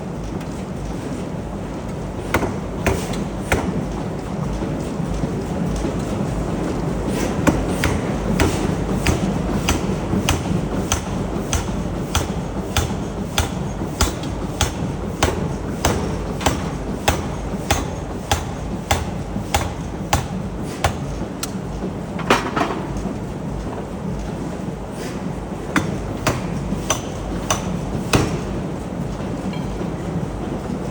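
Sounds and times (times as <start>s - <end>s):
factory machinery rumble: 0.0s - 30.9s
hammer striking steel: 7.5s - 21.5s, 25.8s - 28.5s.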